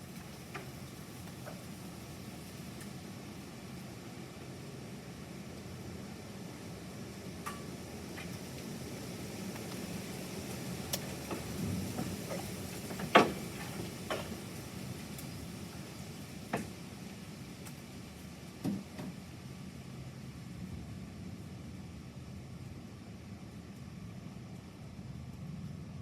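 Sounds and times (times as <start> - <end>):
light rain hissing: 0.0 - 26.0
sharp drip-like ticks: 7.4 - 8.7, 9.5 - 15.8, 17.6 - 18.3.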